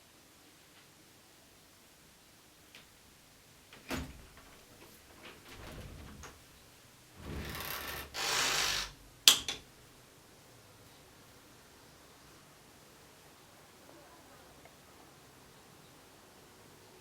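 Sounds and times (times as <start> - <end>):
rustling: 3.7 - 9.0
sliding or scraping noises: 4.8 - 6.5, 7.2 - 9.0.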